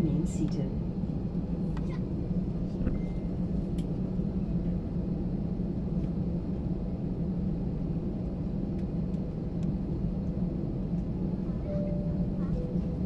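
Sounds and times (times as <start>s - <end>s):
aircraft engine rumble: 0.0s - 13.0s.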